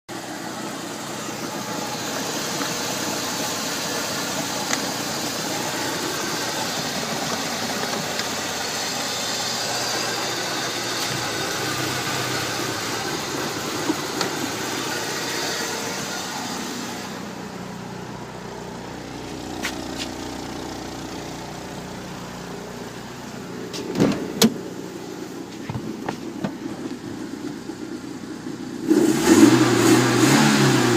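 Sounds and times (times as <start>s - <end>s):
car engine idling: 0.1s - 30.9s
car engine revving: 0.4s - 30.9s
sharp engine knocks: 23.7s - 24.6s, 25.6s - 27.6s.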